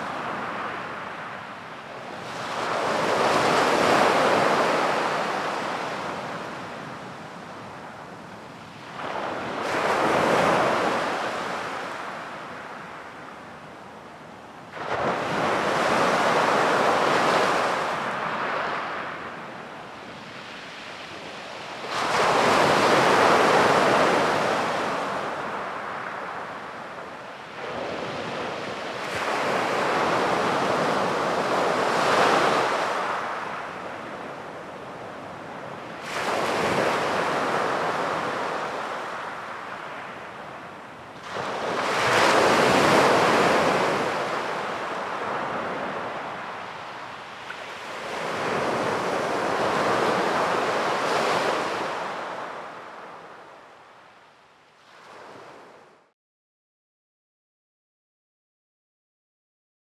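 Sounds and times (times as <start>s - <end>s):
sea waves breaking on beach: 2.1s - 7.1s, 8.7s - 12.8s, 14.7s - 19.4s, 20.2s - 53.3s.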